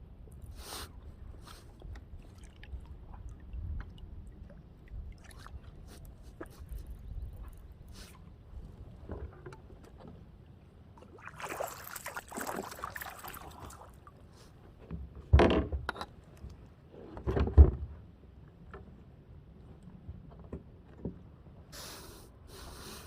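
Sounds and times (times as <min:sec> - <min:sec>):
kayak paddle strokes in water: 0:11.0 - 0:14.6.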